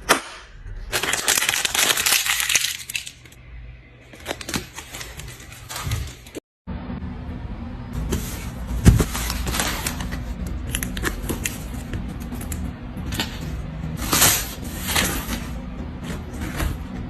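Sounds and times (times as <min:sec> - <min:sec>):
plastic packaging crinkling: 0:00.9 - 0:03.3
background music: 0:06.7 - 0:17.0.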